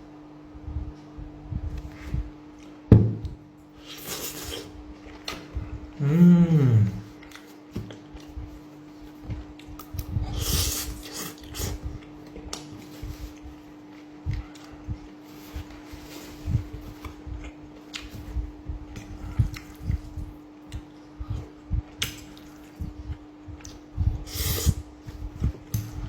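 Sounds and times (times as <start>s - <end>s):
person humming mmm: 5.9s - 7.2s.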